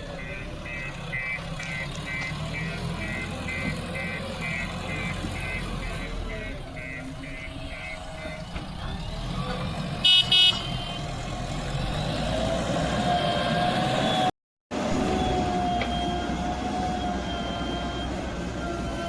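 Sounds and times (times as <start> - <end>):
diesel engine running: 0.0 - 14.2
reversing beeper: 0.1 - 8.6.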